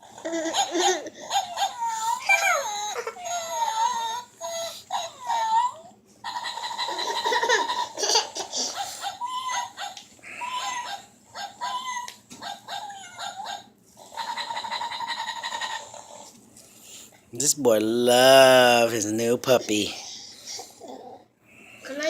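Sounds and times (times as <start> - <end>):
toy puppy yips and whimpers: 0.3 - 7.9, 8.6 - 16.2.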